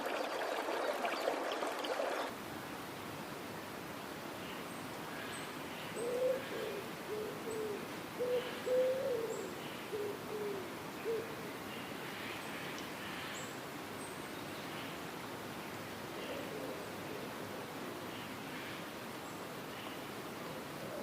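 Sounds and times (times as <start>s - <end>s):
owl hooting: 6.0s - 11.2s.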